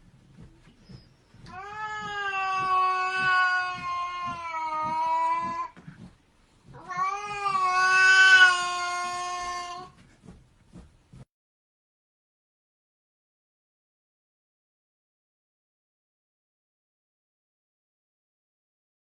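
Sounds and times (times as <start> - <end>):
cat yowling: 1.4 - 5.8, 6.7 - 9.9.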